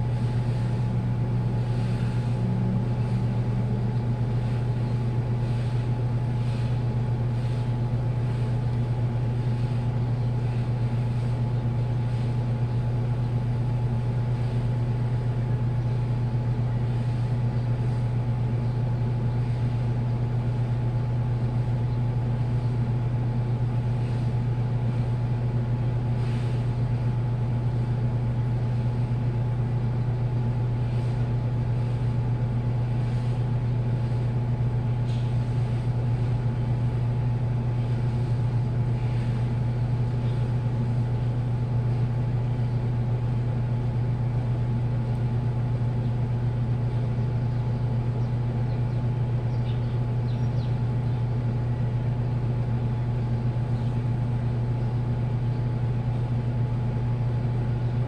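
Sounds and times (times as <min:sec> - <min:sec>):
washing machine humming: 0:00.0 - 0:58.0.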